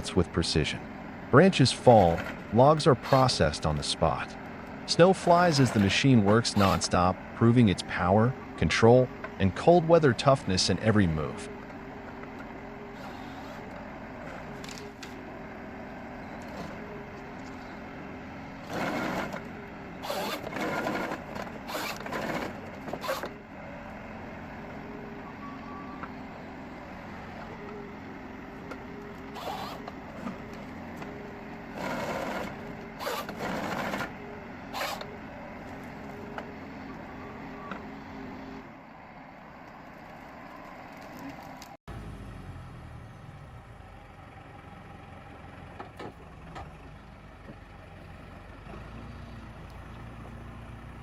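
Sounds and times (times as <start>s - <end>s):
tractor diesel engine running: 0.0s - 51.0s
harvester head cutting bursts: 1.8s - 3.8s, 5.0s - 7.1s, 18.6s - 23.4s, 29.2s - 30.5s, 31.7s - 35.2s.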